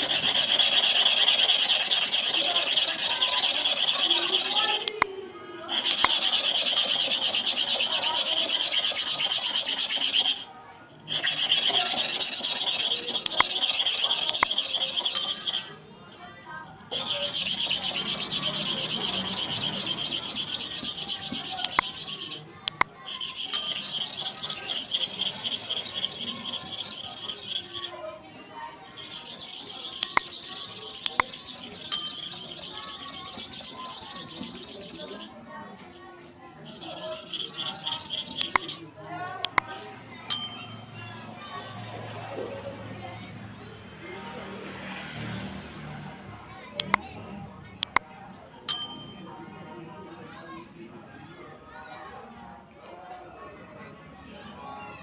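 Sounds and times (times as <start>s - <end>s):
blade scraping on sharpening surface: 0.0s - 5.0s, 5.6s - 15.8s, 16.5s - 28.1s, 28.8s - 38.8s, 39.4s - 41.0s, 48.7s - 49.4s.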